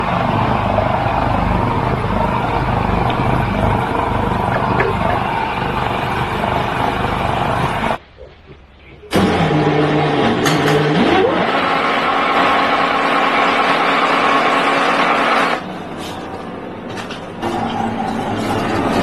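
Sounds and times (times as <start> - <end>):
machine running with low pulsing: 0.0 - 8.0.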